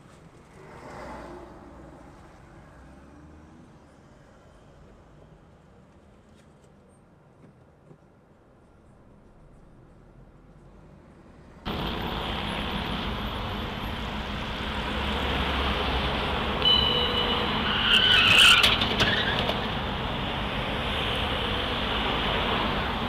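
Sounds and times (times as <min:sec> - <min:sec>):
road and engine noise: 0:00.0 - 0:23.0
high tyre squeal: 0:16.6 - 0:20.0.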